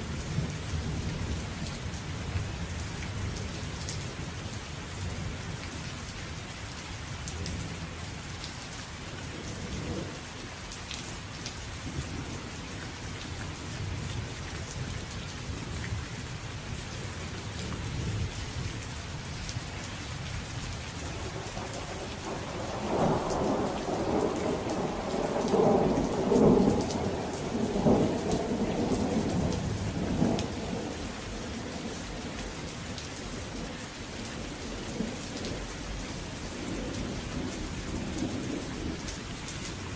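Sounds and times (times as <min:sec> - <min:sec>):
steady rain falling: 0:00.0 - 0:39.9
thunder rumbling: 0:21.2 - 0:31.0.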